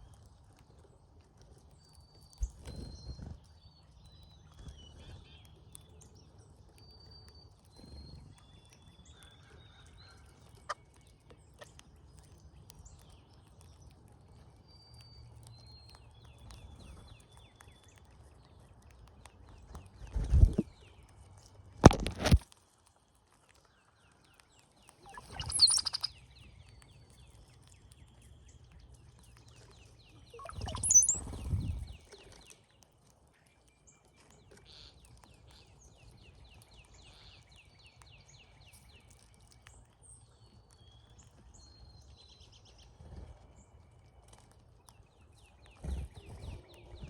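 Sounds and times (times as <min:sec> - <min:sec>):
faint bird chirps: 0:01.8 - 0:06.1, 0:24.9 - 0:27.3, 0:29.4 - 0:32.7
bird calls with sliding whistle: 0:25.1 - 0:26.1, 0:30.4 - 0:31.4.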